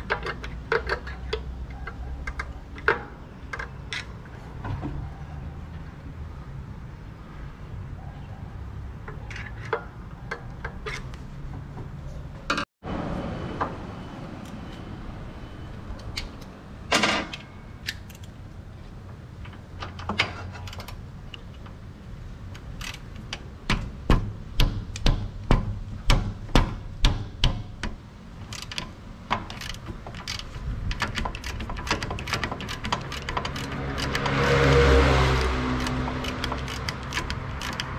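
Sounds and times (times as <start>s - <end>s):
sharp metal knocks: 23.6s - 28.0s.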